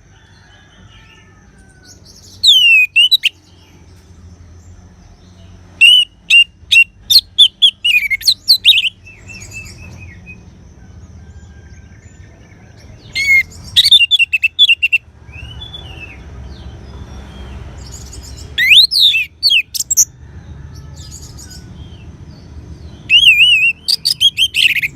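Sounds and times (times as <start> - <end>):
thrush singing whistled notes: 2.2 - 3.5, 5.8 - 10.4, 13.2 - 16.2, 17.8 - 20.1, 23.0 - 24.9.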